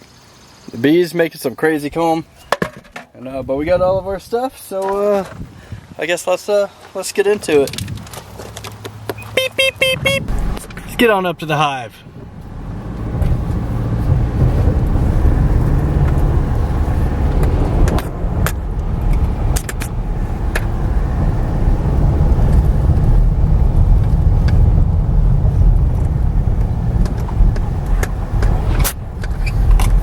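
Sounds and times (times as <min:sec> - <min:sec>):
vehicle driving rumble: 0:06.8 - 0:30.0.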